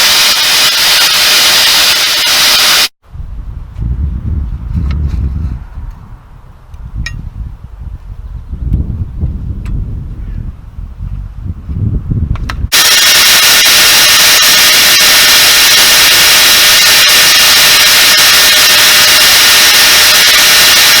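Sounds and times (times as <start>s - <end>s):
belt sander whining: 0.0s - 2.9s, 12.7s - 21.0s.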